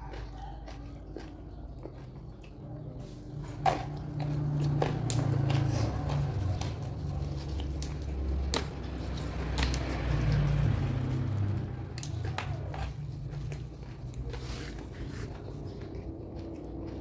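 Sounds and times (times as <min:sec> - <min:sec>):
person chewing food: 0:00.0 - 0:17.0
sharp crunching clicks: 0:03.4 - 0:17.0.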